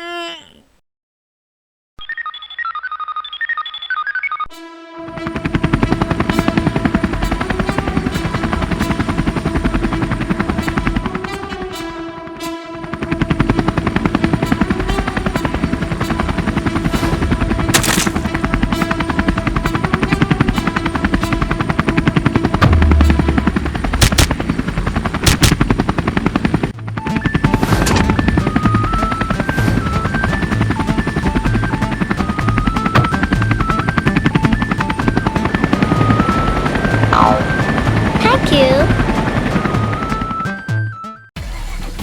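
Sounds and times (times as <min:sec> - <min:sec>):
rhythmic chopping vehicle sound: 0:12.9 - 0:40.6
children's background music: 0:27.1 - 0:41.2.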